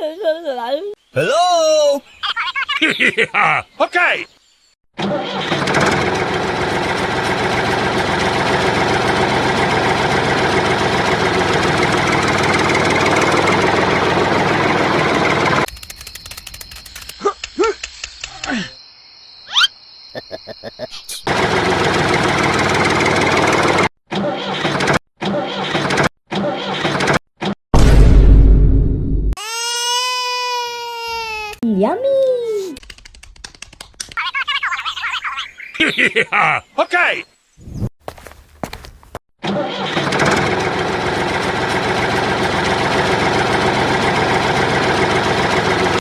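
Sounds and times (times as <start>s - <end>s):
tractor engine running: 5.0s - 17.1s, 21.3s - 27.2s, 39.4s - 46.0s.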